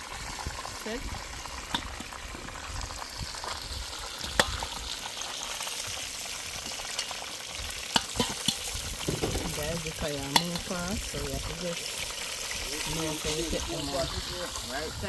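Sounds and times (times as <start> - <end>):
meat sizzling in a pot: 0.0 - 15.0
wood fire burning: 0.0 - 15.0
utensil clacking against pot: 7.9 - 10.8.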